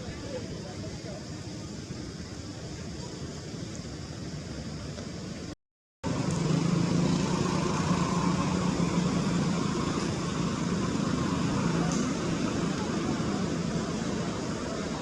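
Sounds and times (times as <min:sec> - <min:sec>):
wash of noise: 0:06.1 - 0:15.0.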